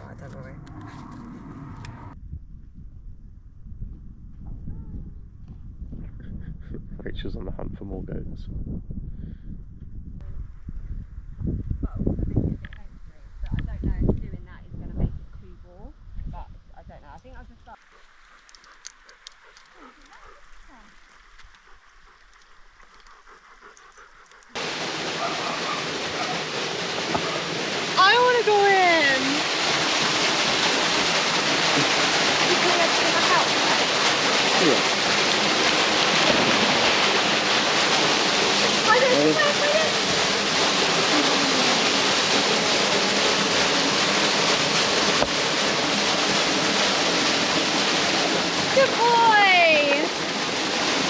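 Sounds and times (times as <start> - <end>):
rushing water: 24.6 - 51.0.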